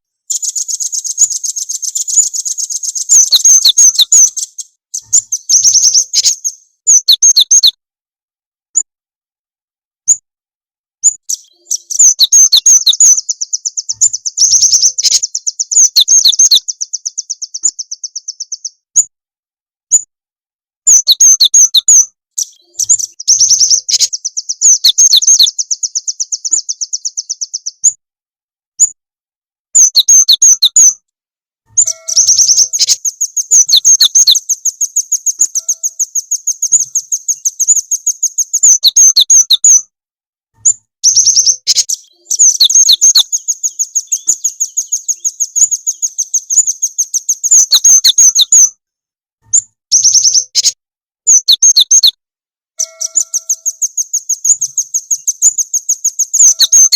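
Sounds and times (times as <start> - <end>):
songbird rapid high chirps: 0.0 - 7.8, 11.0 - 19.1, 20.9 - 28.0, 29.8 - 31.0, 31.7 - 39.9, 40.6 - 48.8, 49.5 - 52.2, 52.8 - 56.9
sharp falling bird notes: 52.8 - 55.4.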